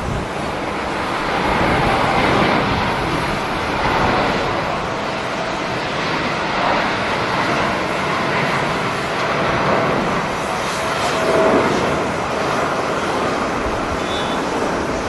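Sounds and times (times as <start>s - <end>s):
jet engine rushing: 0.0s - 15.0s.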